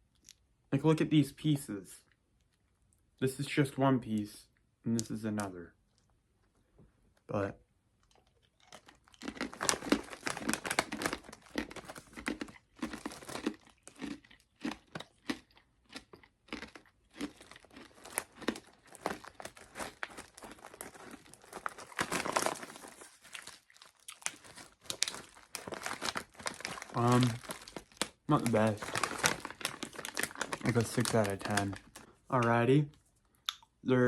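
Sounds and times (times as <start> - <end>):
plastic packaging crinkling: 8.6 - 15.0, 16.6 - 32.4.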